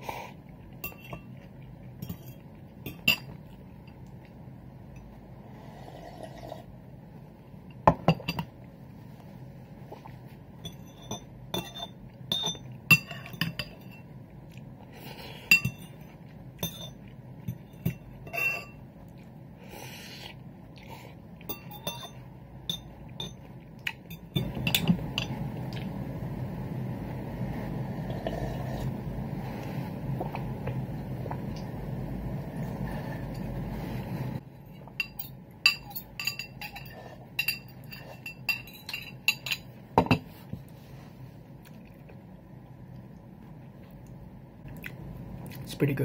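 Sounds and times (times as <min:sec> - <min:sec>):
metal spoon clinking ceramic bowl: 0:10.6 - 0:14.1, 0:15.5 - 0:18.8, 0:21.5 - 0:25.4, 0:35.0 - 0:40.2.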